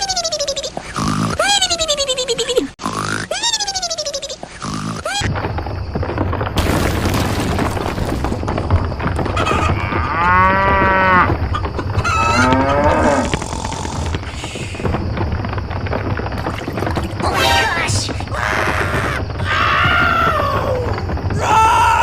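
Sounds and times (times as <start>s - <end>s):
cow mooing: 12.2s - 13.4s.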